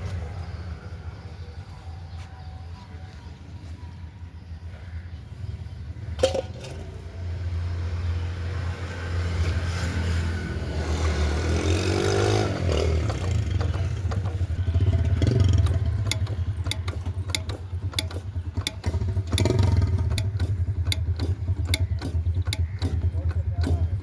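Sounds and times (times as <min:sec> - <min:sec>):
diesel engine droning: 0:00.0 - 0:24.0
sharp regular clicks: 0:12.7 - 0:24.0.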